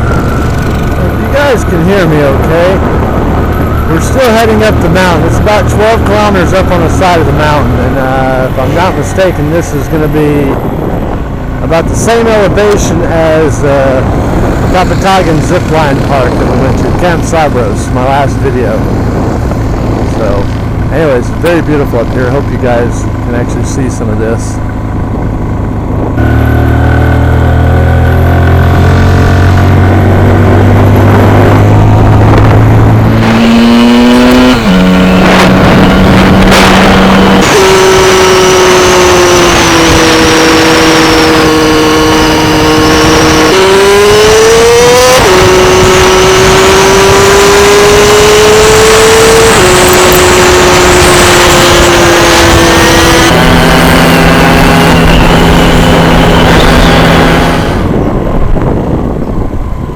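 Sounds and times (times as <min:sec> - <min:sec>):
vehicle engine climbing and shifting gear: 0:00.0 - 0:59.9.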